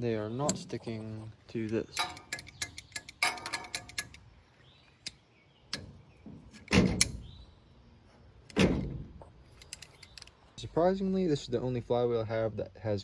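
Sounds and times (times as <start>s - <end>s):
light metal clicks: 1.6s - 7.3s, 9.5s - 10.5s
heavy metal clunk: 5.8s - 7.4s, 8.5s - 9.8s.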